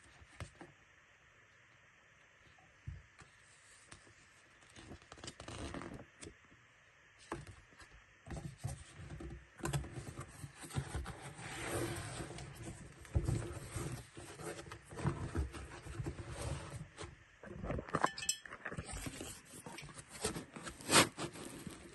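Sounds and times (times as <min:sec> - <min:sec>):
packaging scraping and rustling: 0:09.9 - 0:18.0, 0:18.7 - 0:21.9.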